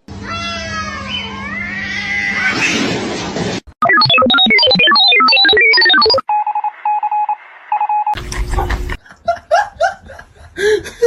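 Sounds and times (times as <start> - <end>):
cat meowing: 0.2 - 2.7
electronic keypad beeps: 3.8 - 8.2
pulsing steady beep: 3.8 - 8.2.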